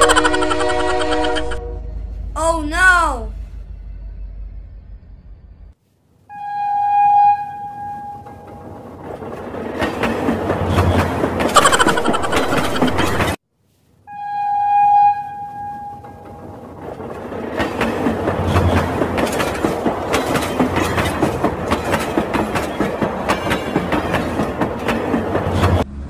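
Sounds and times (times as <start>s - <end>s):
train horn: 0.6s - 2.2s, 6.3s - 8.5s, 14.1s - 16.2s
train wheels clickety-clack: 8.2s - 13.4s, 16.0s - 25.8s.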